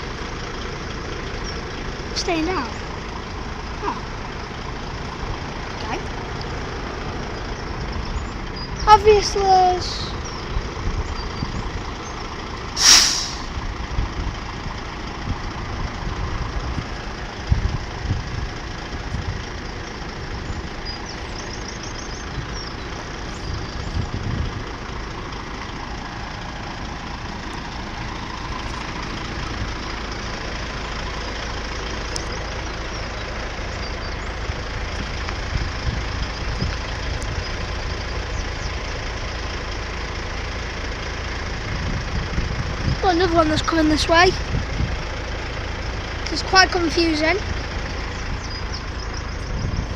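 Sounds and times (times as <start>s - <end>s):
heavy vehicles idling: 0.0s - 49.9s
air brake hiss: 12.8s - 13.6s.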